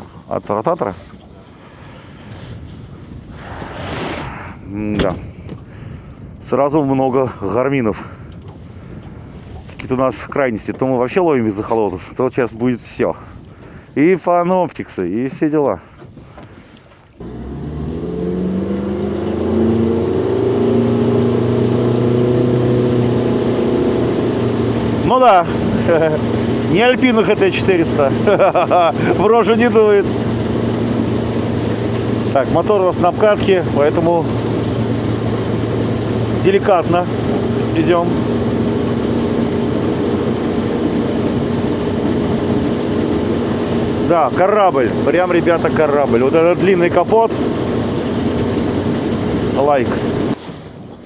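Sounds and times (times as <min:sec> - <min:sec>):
outboard motor running: 0:00.0 - 0:03.7, 0:16.0 - 0:51.0.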